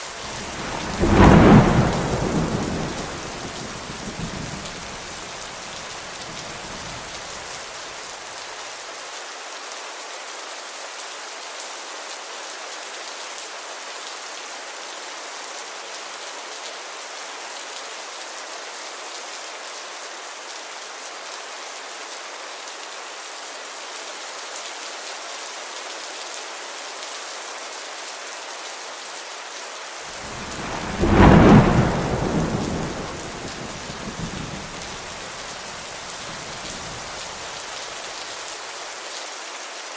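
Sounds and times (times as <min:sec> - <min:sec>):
steady rain falling: 0:00.0 - 0:39.9
thunder rumbling: 0:00.1 - 0:07.4, 0:30.1 - 0:37.7.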